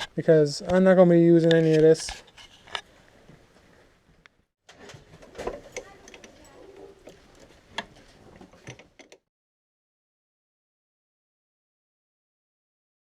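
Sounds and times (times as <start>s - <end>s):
faint clicks and knocks: 4.2s - 9.2s.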